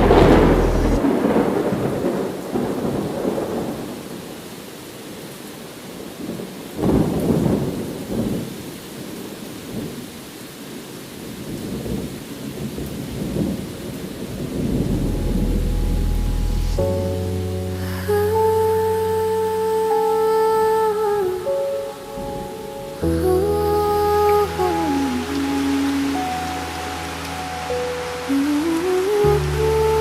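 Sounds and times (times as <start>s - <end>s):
thunder rumbling: 0.0s - 4.1s, 12.7s - 20.0s
steady rainfall: 0.0s - 30.0s.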